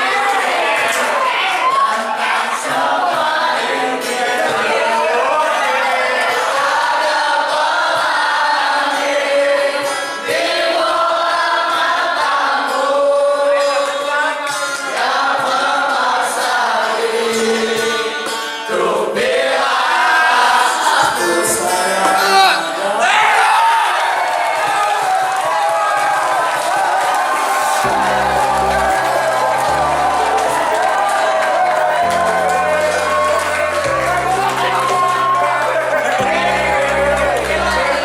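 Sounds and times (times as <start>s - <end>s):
group singing in unison: 0.4s - 23.0s, 27.4s - 38.0s.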